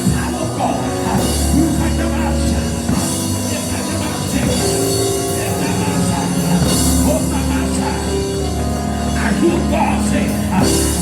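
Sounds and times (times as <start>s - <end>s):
church band playing praise music: 0.0s - 11.0s
drum kit: 0.0s - 11.0s
held organ chords: 0.0s - 11.0s.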